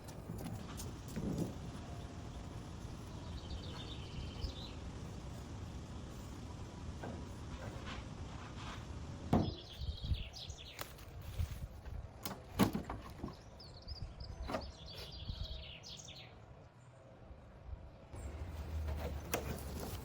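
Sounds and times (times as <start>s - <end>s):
birds twittering: 1.4s - 5.4s, 9.4s - 11.1s, 13.1s - 16.4s.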